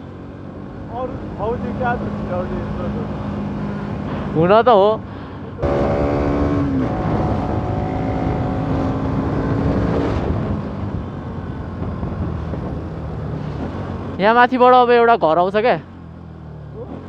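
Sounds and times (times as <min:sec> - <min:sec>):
motorcycle engine pulling: 0:00.8 - 0:17.0
wind rush: 0:06.5 - 0:14.0.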